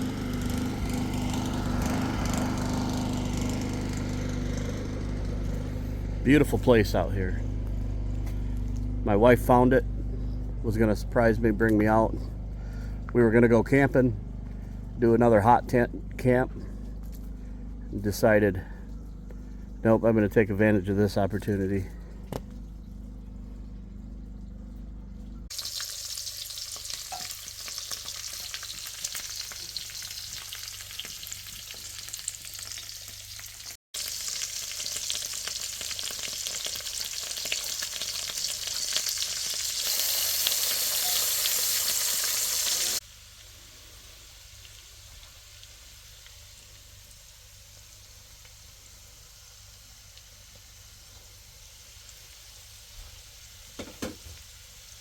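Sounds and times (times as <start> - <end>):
low steady hum: 0.0 - 27.0
food sizzling in a pan: 25.5 - 55.0.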